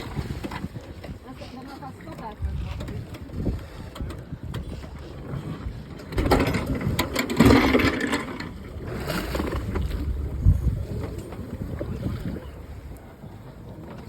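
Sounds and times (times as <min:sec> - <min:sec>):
sea noise: 0:00.0 - 0:14.0
wind buffeting microphone: 0:00.0 - 0:14.0.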